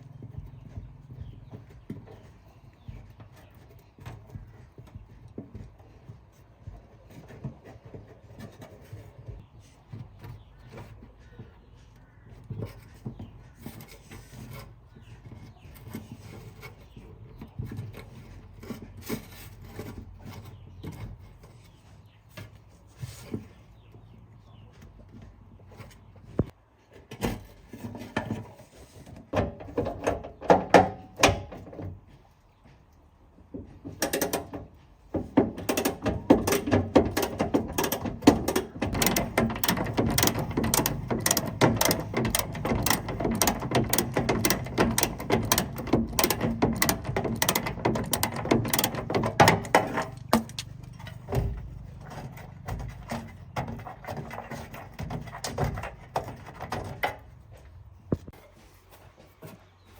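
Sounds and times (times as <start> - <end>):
tool knocks and clinks on metal: 33.6 - 57.2
rapid ratcheting clicks: 35.8 - 51.1.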